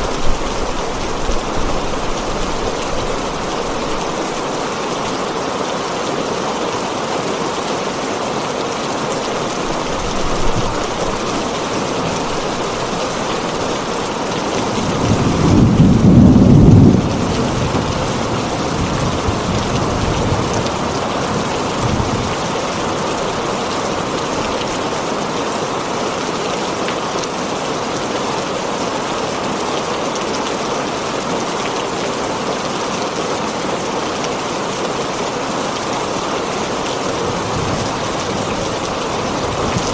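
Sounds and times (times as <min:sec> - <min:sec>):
heavy rain on a tin roof: 0:00.0 - 0:39.9
thunder rumbling: 0:09.7 - 0:23.4, 0:37.1 - 0:39.9.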